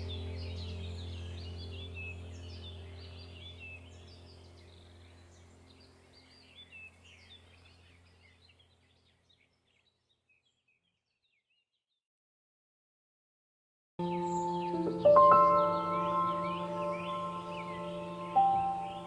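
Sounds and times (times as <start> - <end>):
droning background music: 0.0 - 7.3, 14.0 - 19.0
birds chirping: 0.0 - 11.7, 14.0 - 19.0.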